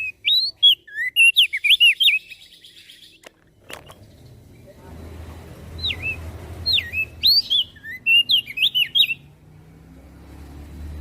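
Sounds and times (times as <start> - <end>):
bird whistling song: 0.0 - 4.0, 5.7 - 9.3.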